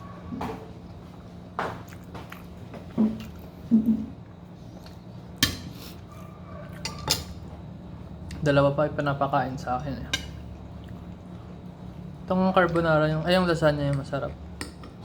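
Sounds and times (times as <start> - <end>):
cutlery clinking against a plate: 5.4 - 5.8, 6.7 - 7.4.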